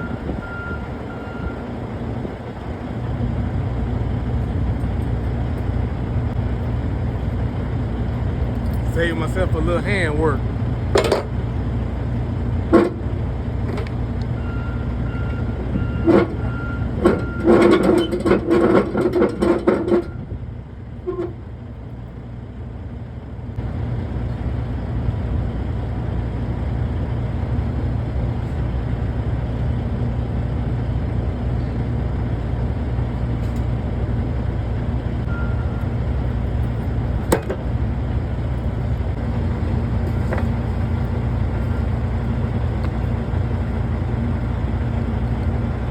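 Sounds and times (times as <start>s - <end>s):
diesel truck engine idling: 0.0s - 45.9s
metallic clanks and rattles: 10.9s - 11.4s, 12.6s - 14.0s, 15.8s - 20.2s, 36.5s - 37.8s, 38.4s - 43.8s.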